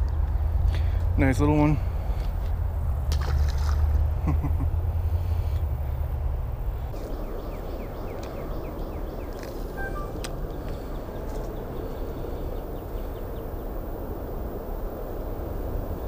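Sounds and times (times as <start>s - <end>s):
bird chirping: 7.0s - 13.4s.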